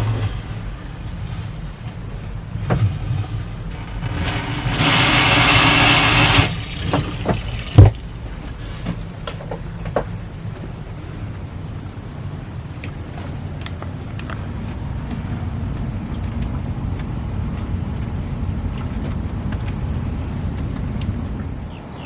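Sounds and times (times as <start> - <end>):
steady low hum: 0.0 - 22.0
shower sprayer water hiss: 3.8 - 8.7.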